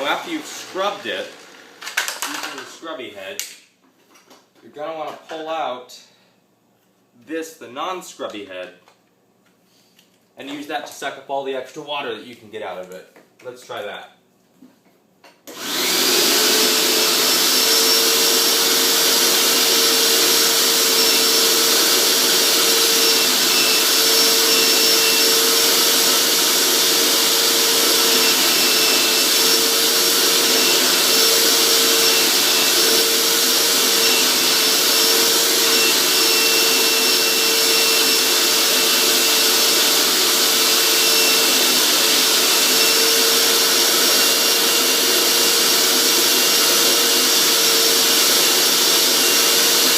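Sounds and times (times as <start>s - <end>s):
carpet cleaner suction motor whining: 0.0s - 2.6s, 15.5s - 49.9s.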